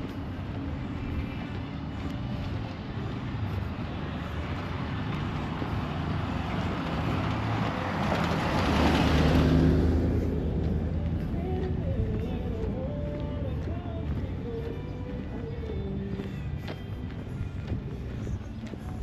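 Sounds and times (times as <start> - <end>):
car passing by: 0.0 - 12.5.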